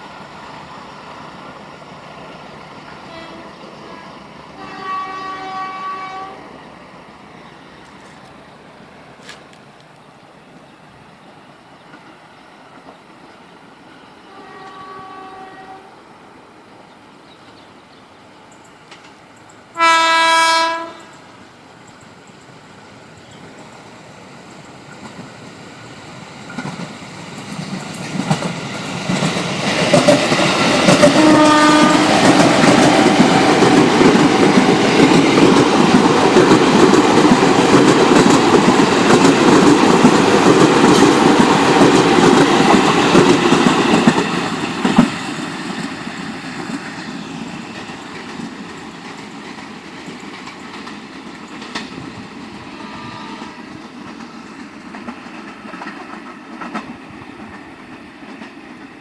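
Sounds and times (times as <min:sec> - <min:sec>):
train wheels rumbling on rails: 0:00.0 - 0:15.8, 0:18.2 - 0:59.0
distant train horn: 0:02.9 - 0:06.5, 0:14.1 - 0:16.1, 0:19.7 - 0:21.3, 0:30.9 - 0:32.6, 0:52.5 - 0:54.0
train horn blast: 0:03.0 - 0:06.4, 0:14.2 - 0:16.0, 0:19.8 - 0:21.2, 0:31.0 - 0:32.3, 0:52.6 - 0:53.9.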